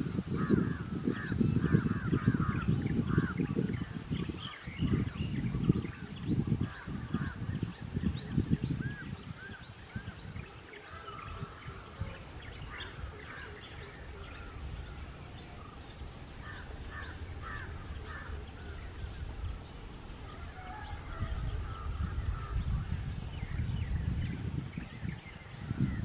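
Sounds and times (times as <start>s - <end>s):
birds calling and chirping: 0.0s - 26.0s
low rumbling noise: 11.4s - 26.0s.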